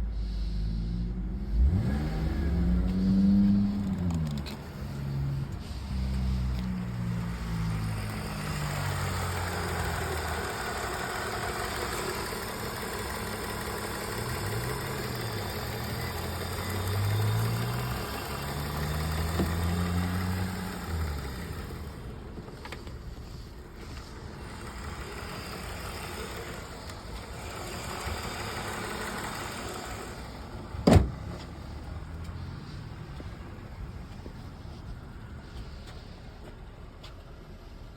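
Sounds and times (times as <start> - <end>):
car engine revving: 0.1 - 35.4
sharp thump: 30.8 - 31.4.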